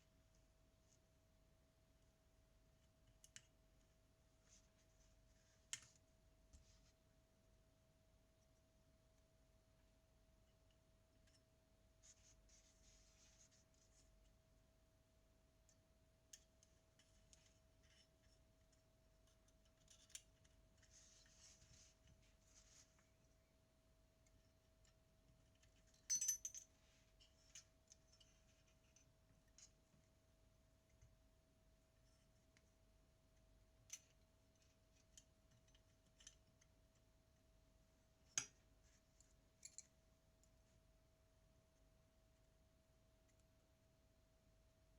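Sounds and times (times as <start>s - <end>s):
faint steady hum: 0.0s - 44.9s
faint scratching and rustling: 4.3s - 5.7s, 6.5s - 7.0s, 11.9s - 14.4s, 19.2s - 23.4s.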